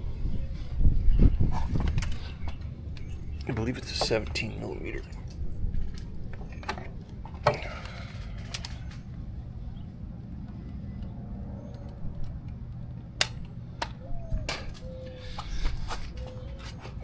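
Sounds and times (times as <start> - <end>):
steady low hum: 0.0 - 17.0
metallic clicks of hand tools: 13.2 - 14.9.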